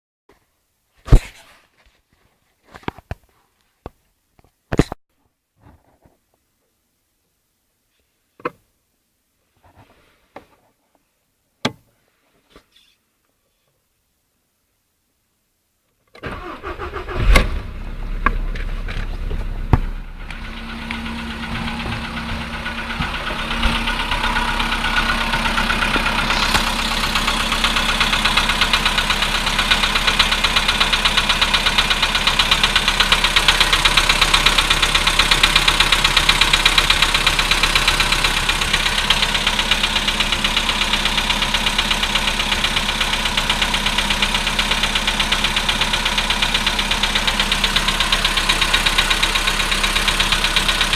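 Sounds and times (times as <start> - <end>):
petrol engine starting: 16.2 - 50.9
engine idling with metallic knocking: 17.8 - 50.9.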